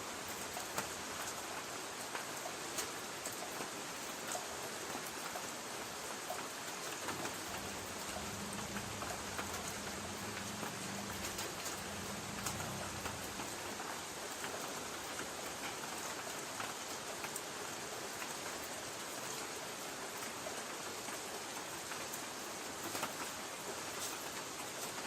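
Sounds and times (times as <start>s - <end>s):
rain on a tin roof: 0.0s - 25.0s
faint low rumble: 7.4s - 13.7s.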